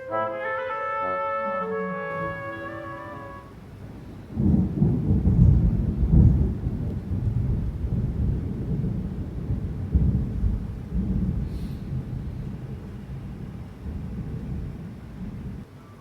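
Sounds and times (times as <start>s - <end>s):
rolling thunder rumble: 1.3s - 15.8s.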